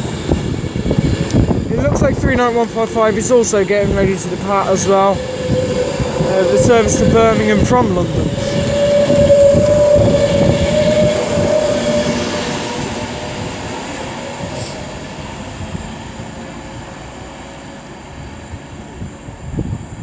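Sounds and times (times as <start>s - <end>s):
steady whine: 0.0s - 16.7s
electric train pulling out: 0.0s - 19.9s.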